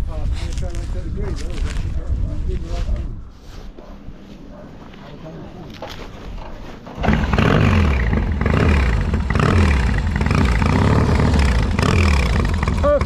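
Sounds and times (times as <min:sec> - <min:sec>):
motorcycle engine accelerating: 0:06.8 - 0:13.0.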